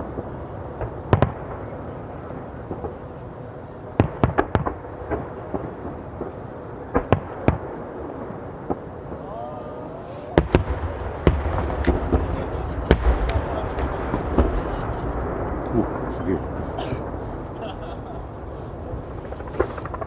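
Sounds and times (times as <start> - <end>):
rumble of fireworks: 0.0 - 20.0
fireworks bangs: 10.0 - 20.0.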